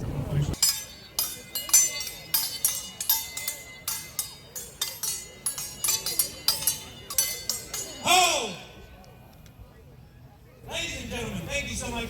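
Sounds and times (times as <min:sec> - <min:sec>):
swords clashing: 0:00.6 - 0:08.8.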